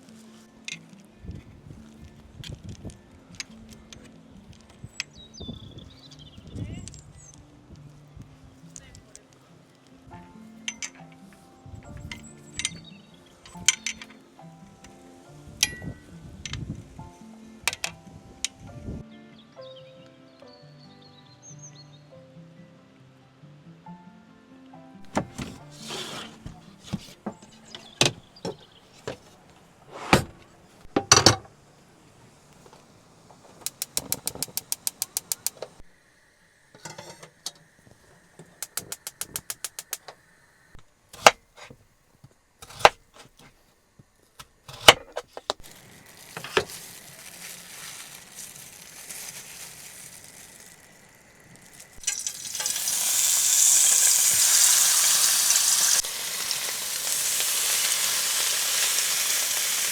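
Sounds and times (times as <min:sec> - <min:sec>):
kitchen items clattering: 0:25.0 - 0:31.5, 0:36.8 - 0:37.4, 0:44.7 - 0:50.8
rapid even clicking: 0:33.6 - 0:35.7, 0:38.6 - 0:40.1
food sizzling in a hot pan: 0:45.6 - 0:59.9.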